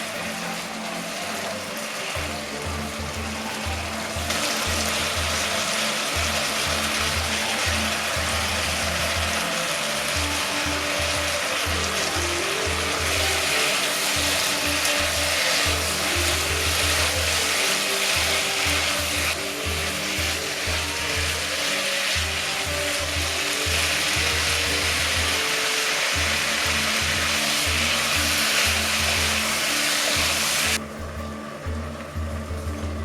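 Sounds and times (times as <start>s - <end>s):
food sizzling in a frying pan: 0.0s - 30.8s
background music: 0.0s - 33.0s.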